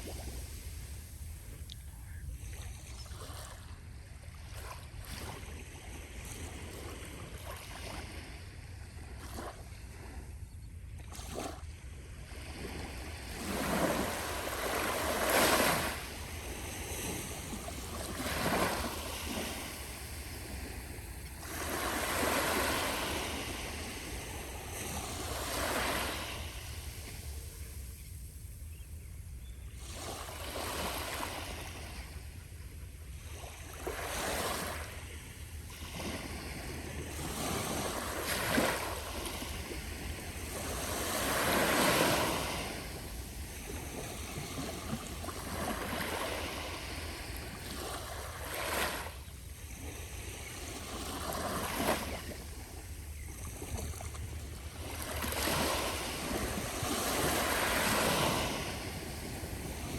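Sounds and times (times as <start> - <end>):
gentle waves washing onto beach: 0.0 - 10.3, 11.2 - 28.3, 33.2 - 59.9
wind rumble on microphone: 49.5 - 59.9.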